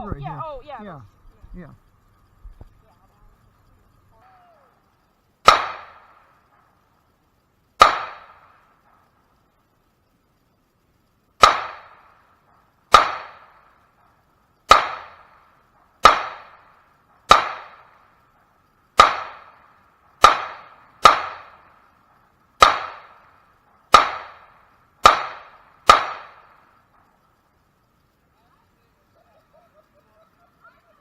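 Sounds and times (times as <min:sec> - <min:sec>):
pistol shots: 0:05.4 - 0:06.7, 0:07.8 - 0:09.0, 0:11.4 - 0:12.2, 0:12.9 - 0:13.7, 0:14.7 - 0:18.0, 0:19.0 - 0:21.9, 0:22.6 - 0:26.7.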